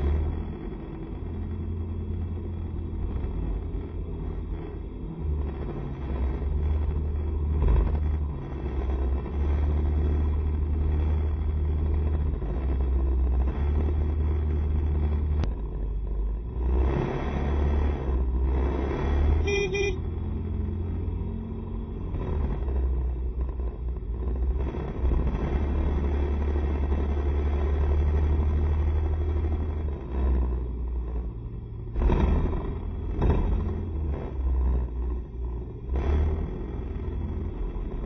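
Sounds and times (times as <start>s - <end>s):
scooter engine and road rumble: 0.0s - 38.0s
vehicle horn honk: 19.4s - 20.1s.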